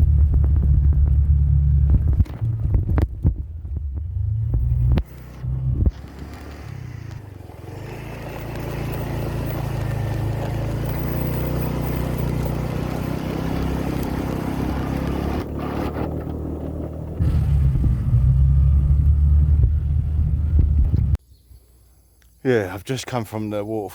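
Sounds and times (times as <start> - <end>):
wind noise: 0.0 - 7.3, 11.6 - 18.4, 19.4 - 21.2
road noise: 0.0 - 21.2
vehicle engine running: 0.0 - 21.2.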